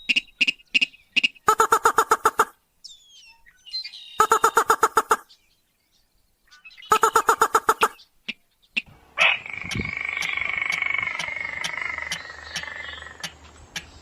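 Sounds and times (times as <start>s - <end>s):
rail bird rapid ticking calls: 0.0s - 2.6s, 4.2s - 5.3s, 6.8s - 14.0s.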